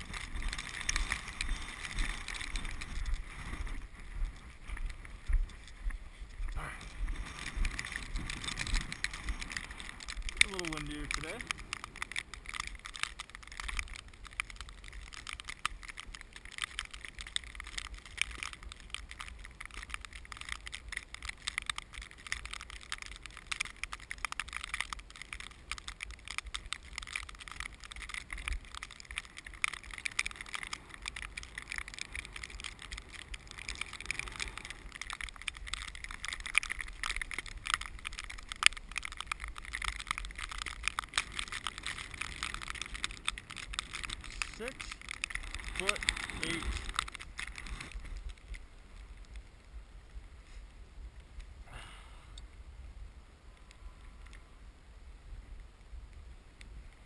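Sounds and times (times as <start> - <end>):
strong wind buffeting microphone: 0.0 - 10.4.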